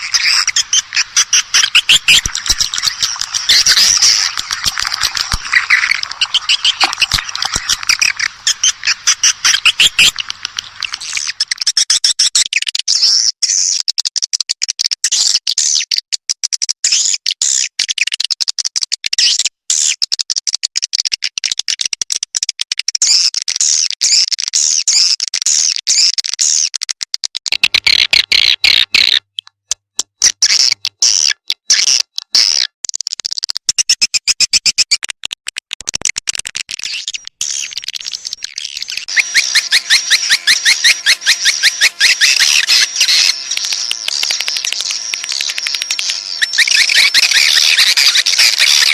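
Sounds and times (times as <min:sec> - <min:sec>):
swiftlets twittering: 0:00.0 - 0:11.7, 0:37.0 - 0:48.9.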